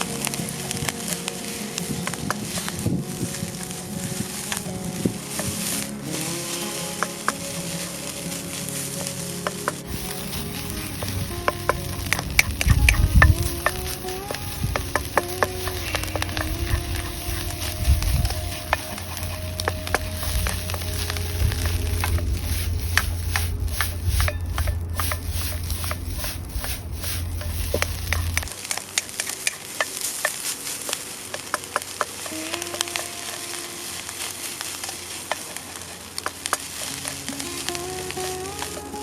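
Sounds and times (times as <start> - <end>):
background music: 0.0 - 29.7, 30.5 - 39.0
rice sizzling in a pan: 0.0 - 39.0
spatula scraping a pan: 4.3 - 28.5.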